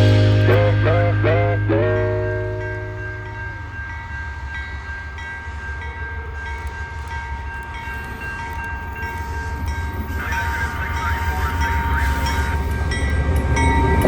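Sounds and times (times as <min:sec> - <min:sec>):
high whine: 0:00.0 - 0:04.1
train rumbling: 0:00.0 - 0:14.0.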